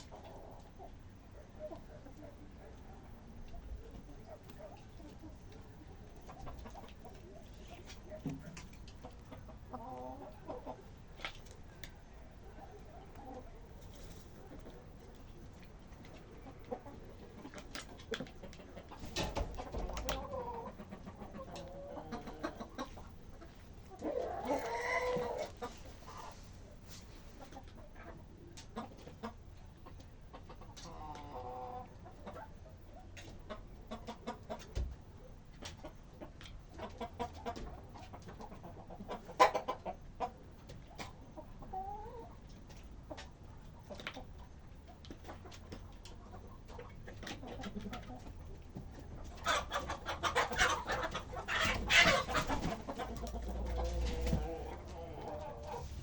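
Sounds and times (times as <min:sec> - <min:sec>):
chickens clucking: 0:00.0 - 0:56.0
drawn-out chicken call: 0:19.6 - 0:26.5, 0:49.2 - 0:56.0.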